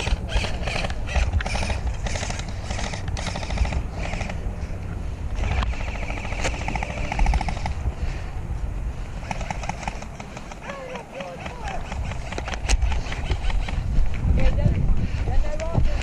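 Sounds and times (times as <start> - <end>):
airsoft guns full-auto rattle: 0.0 - 4.5, 5.3 - 7.8, 9.2 - 13.9.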